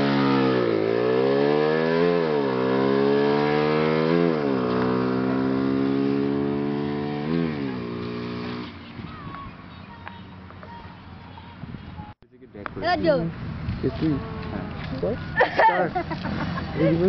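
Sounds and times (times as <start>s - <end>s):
motorcycle engine revving: 0.0s - 9.1s.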